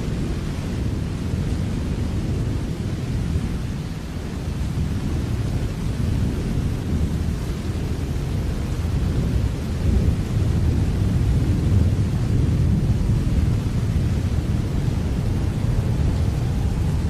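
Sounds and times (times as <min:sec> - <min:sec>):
steady rain: 0:00.0 - 0:17.0
low rumble: 0:10.0 - 0:17.0.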